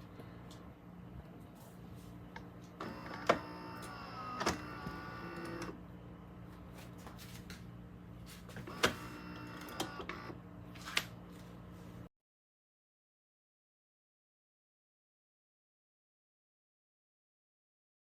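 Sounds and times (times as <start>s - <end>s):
espresso machine humming: 2.8s - 5.8s, 8.7s - 10.3s
motor whirring: 2.8s - 5.8s, 8.7s - 10.3s.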